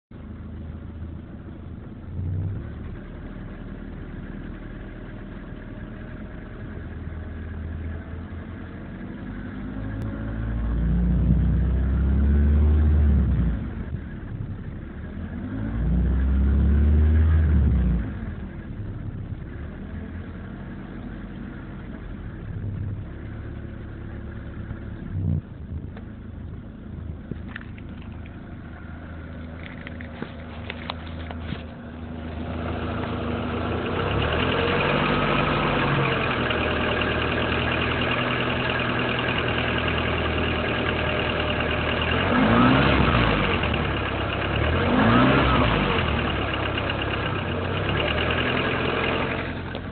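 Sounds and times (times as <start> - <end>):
car engine idling and revving: 0.0 - 49.9.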